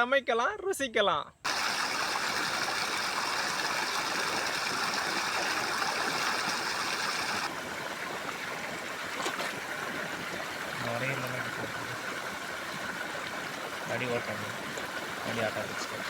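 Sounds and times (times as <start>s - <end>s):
running water rushing: 1.5s - 16.0s.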